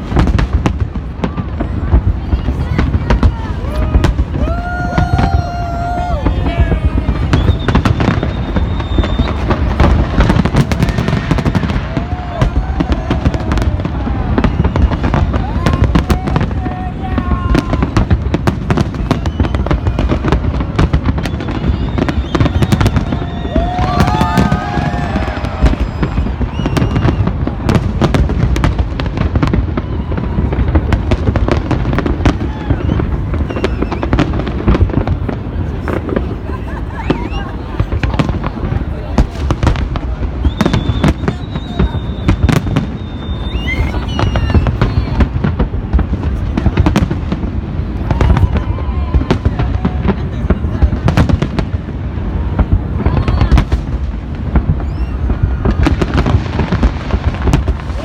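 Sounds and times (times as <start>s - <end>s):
fireworks bangs: 0.0s - 58.0s
whistling tones: 7.2s - 9.8s, 14.3s - 15.2s, 18.0s - 20.2s, 21.0s - 24.6s, 25.7s - 27.4s, 32.6s - 34.2s, 40.4s - 45.3s, 54.8s - 55.3s.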